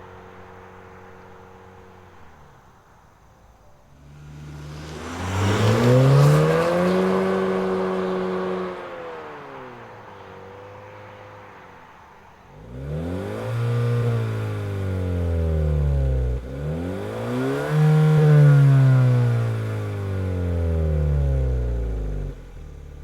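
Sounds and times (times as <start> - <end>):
car engine revving: 3.9 - 10.7, 12.5 - 23.0.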